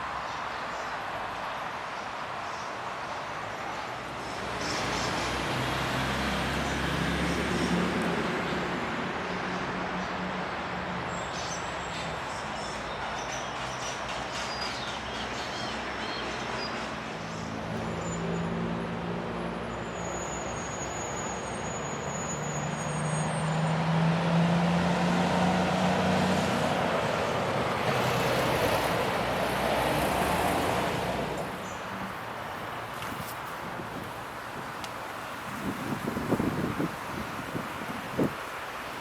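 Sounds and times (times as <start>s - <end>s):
traffic noise: 0.0s - 39.0s
vehicle engine passing: 23.5s - 32.2s.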